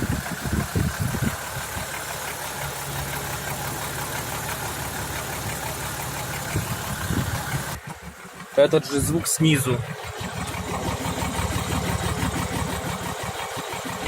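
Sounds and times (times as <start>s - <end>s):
car engine idling with knock: 0.0s - 14.0s.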